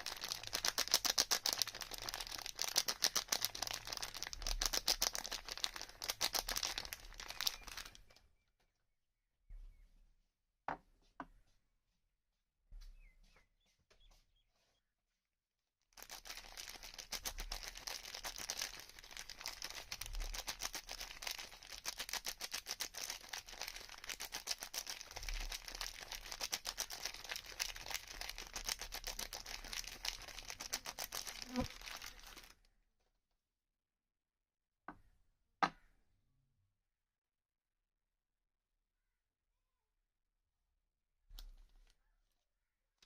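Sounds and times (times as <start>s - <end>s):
wrapper crinkling and tearing: 0.0s - 8.2s, 16.0s - 32.6s.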